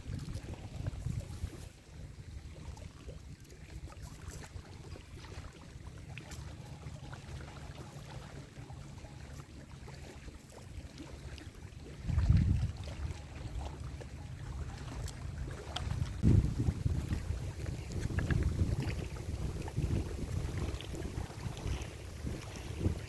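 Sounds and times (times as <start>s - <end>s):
wind buffeting microphone: 0.0s - 2.7s, 12.0s - 14.0s, 14.8s - 23.0s.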